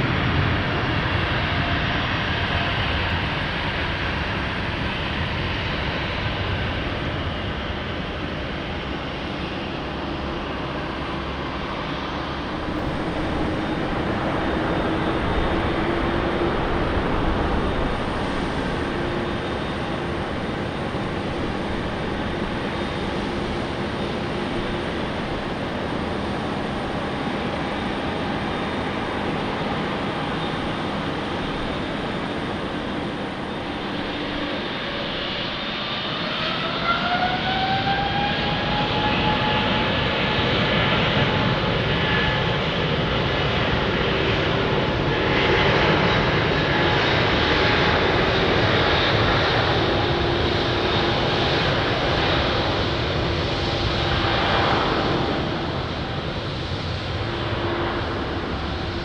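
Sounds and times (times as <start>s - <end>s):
jet engine whine: 0.0s - 59.0s
jet engines roaring: 12.4s - 39.9s.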